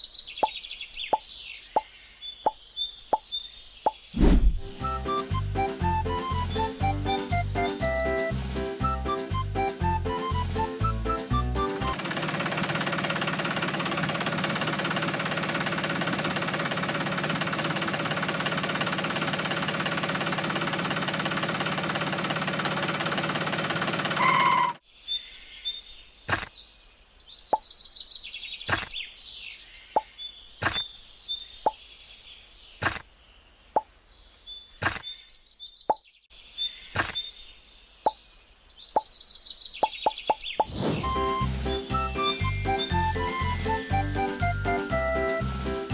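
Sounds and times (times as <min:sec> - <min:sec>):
small motor running: 0:11.8 - 0:24.8.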